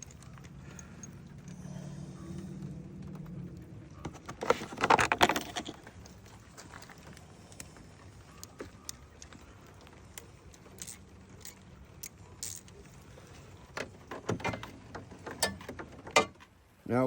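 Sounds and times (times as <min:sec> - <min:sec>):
hands handling parts clicking: 0:00.0 - 0:01.7, 0:03.9 - 0:13.0.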